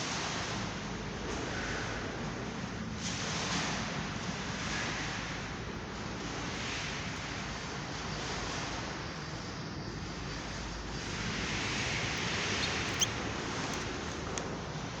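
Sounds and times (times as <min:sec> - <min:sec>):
caged bird chirp: 0:12.0 - 0:14.0.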